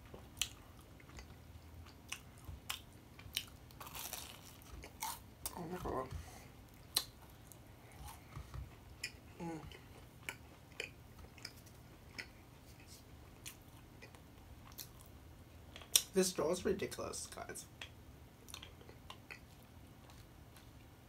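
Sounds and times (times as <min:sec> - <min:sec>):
quiet chewing: 0:00.0 - 0:15.1, 0:17.8 - 0:20.9
person humming: 0:09.4 - 0:09.8.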